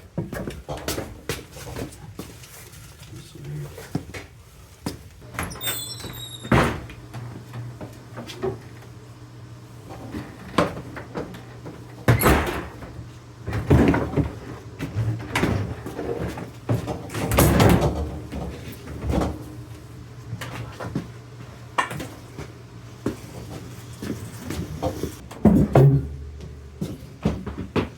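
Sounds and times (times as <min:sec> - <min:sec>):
high squeak: 0:05.4 - 0:06.6.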